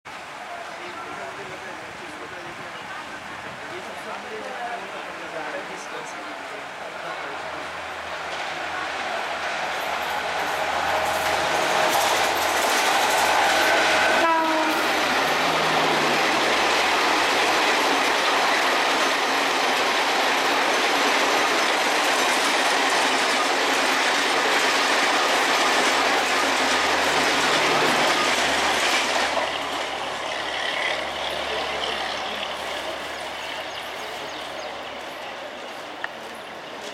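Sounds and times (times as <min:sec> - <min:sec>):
train wheels rushing on rails: 0:00.3 - 0:36.9
locomotive horn: 0:13.3 - 0:15.1.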